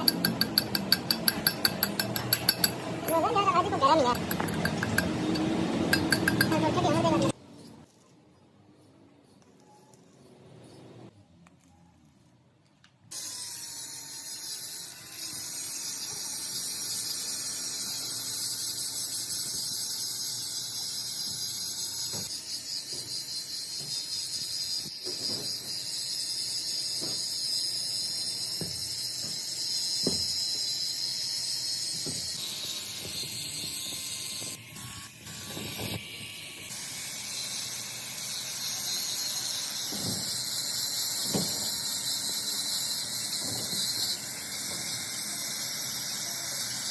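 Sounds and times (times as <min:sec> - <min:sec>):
lathe metal squealing: 0:20.2 - 0:46.9.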